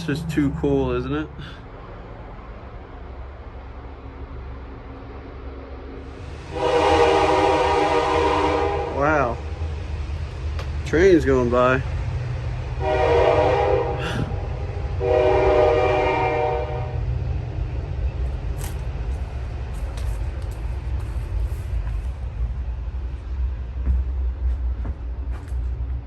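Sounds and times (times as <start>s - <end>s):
low rumble of passing train: 0.0s - 26.0s
train horn blasts: 6.5s - 9.5s, 12.8s - 17.1s.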